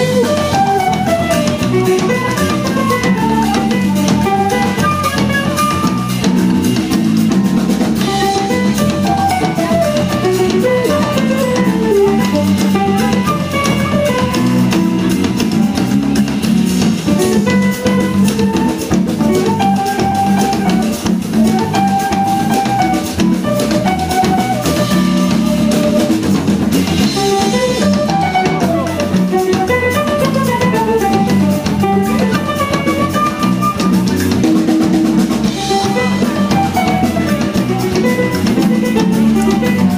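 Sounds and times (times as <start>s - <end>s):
drum kit: 0.0s - 39.9s
electric bass: 0.0s - 39.9s
hand percussion: 0.0s - 39.9s
instrumental melody line: 0.0s - 39.9s
keyboard: 0.0s - 39.9s.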